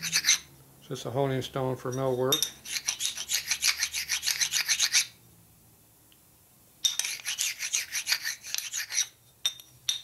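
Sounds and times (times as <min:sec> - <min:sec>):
honing stone scraping on steel: 0:00.0 - 0:00.5, 0:01.9 - 0:05.1, 0:06.9 - 0:09.2.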